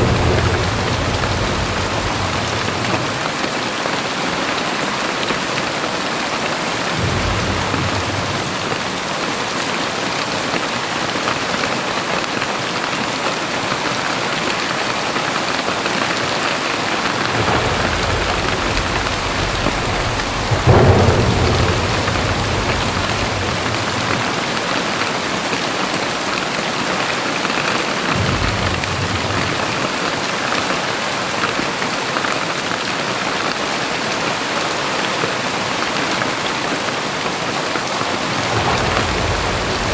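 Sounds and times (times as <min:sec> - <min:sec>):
thunder rumbling: 0:00.0 - 0:04.1, 0:05.8 - 0:09.8, 0:15.9 - 0:25.9, 0:28.1 - 0:30.8, 0:38.1 - 0:39.9
heavy rain hissing: 0:00.0 - 0:04.6, 0:05.4 - 0:10.2, 0:15.6 - 0:26.3, 0:28.1 - 0:30.6, 0:38.0 - 0:39.9.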